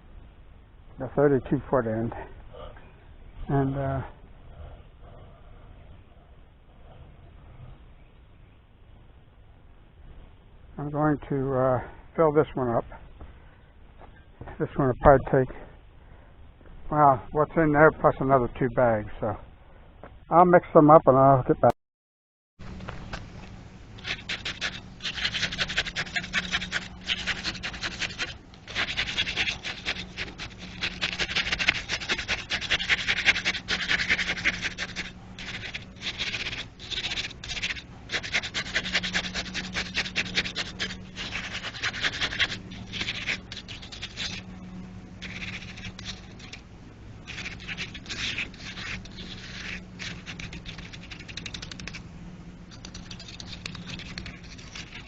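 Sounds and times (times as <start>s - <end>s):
steady low hum: 0.0s - 21.7s, 22.6s - 55.0s
concrete mix scraping: 22.8s - 46.6s, 47.2s - 52.0s, 52.7s - 55.0s.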